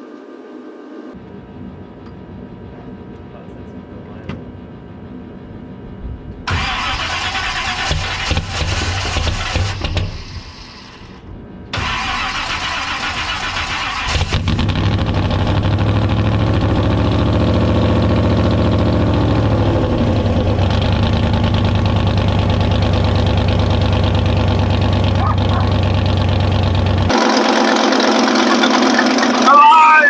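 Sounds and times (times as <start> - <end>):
car engine running: 6.5 - 30.0.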